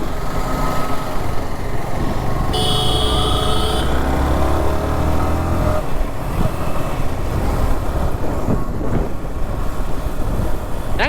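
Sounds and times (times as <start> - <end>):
motorcycle engine rumble: 0.0 - 11.0
wind noise: 6.0 - 11.0.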